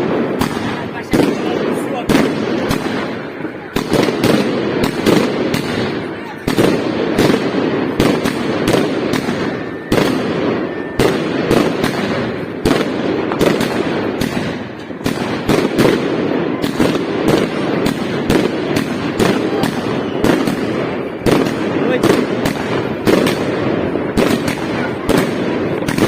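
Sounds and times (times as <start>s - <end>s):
fireworks bangs: 0.0s - 26.0s
fireworks crackling: 0.0s - 26.0s.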